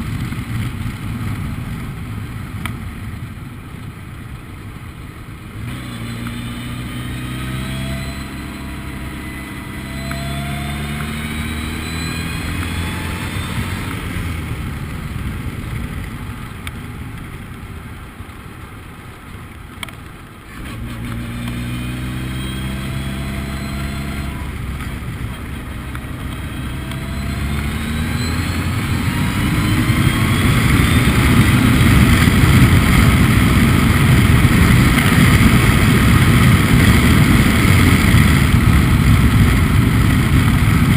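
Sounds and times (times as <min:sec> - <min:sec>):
race car engine accelerating: 0:05.7 - 0:14.4, 0:20.5 - 0:40.9.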